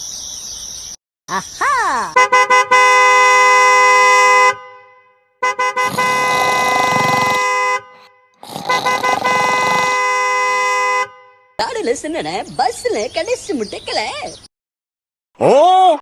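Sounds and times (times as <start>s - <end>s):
two-note vehicle horn blasts: 2.2s - 6.4s, 7.3s - 8.3s, 9.0s - 11.5s.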